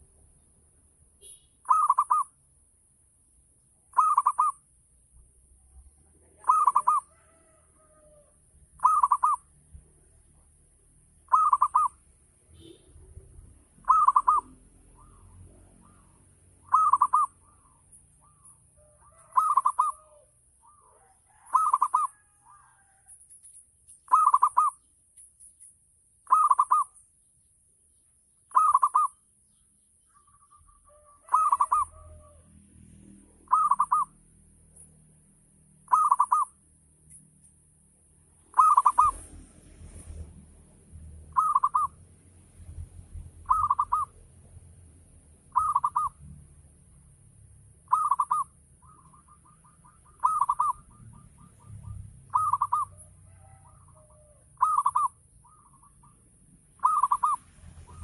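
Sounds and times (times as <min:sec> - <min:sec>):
dove cooing: 0:01.6 - 0:02.4, 0:03.9 - 0:04.6, 0:05.8 - 0:10.4, 0:11.3 - 0:12.0, 0:13.8 - 0:23.0, 0:24.1 - 0:24.9, 0:26.3 - 0:27.0, 0:28.5 - 0:29.2, 0:30.1 - 0:32.5, 0:33.4 - 0:34.2, 0:35.9 - 0:36.6, 0:38.4 - 0:40.3, 0:41.3 - 0:42.0, 0:43.4 - 0:44.2, 0:45.5 - 0:46.3, 0:47.9 - 0:56.2, 0:56.8 - 0:58.0.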